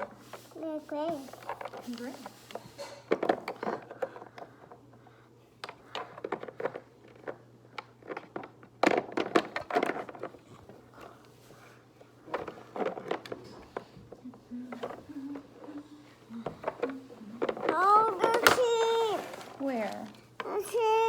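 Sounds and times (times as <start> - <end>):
small toy clicks and knocks: 16.4 - 20.6.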